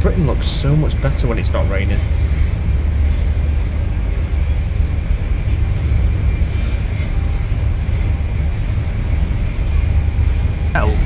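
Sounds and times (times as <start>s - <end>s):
train carriage rumble: 0.0s - 11.0s
faint high whine: 9.1s - 11.0s.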